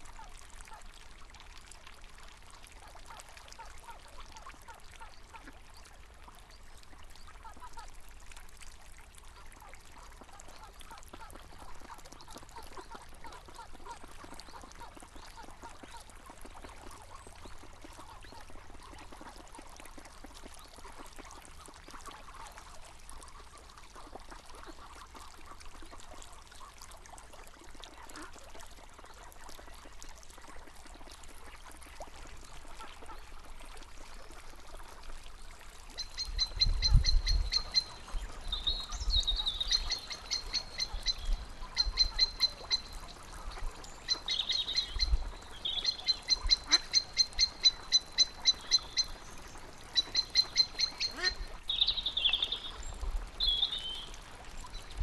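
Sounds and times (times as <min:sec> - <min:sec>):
faint running water: 0:00.0 - 0:55.0
animal high rapid ticking calls: 0:36.0 - 0:43.1, 0:43.9 - 0:52.6.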